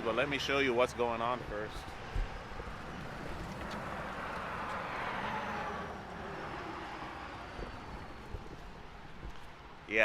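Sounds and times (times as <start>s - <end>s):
vehicle passing by: 2.2s - 8.6s.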